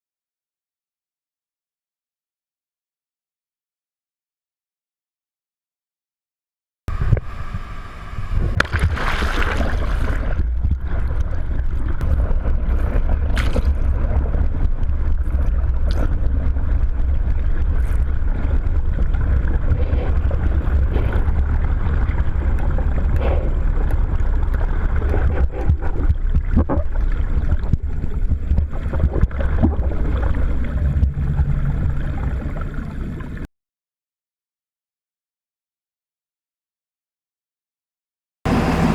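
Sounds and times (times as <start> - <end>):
wind noise: 6.9 - 33.4
boat engine rumble: 6.9 - 33.5, 38.5 - 38.9
rushing water: 8.6 - 33.5.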